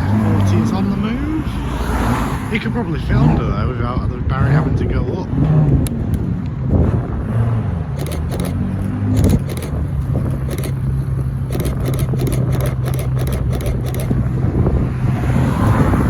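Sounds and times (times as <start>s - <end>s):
car engine running: 0.0s - 1.7s, 2.5s - 16.0s
short sharp clicks: 9.2s - 9.8s.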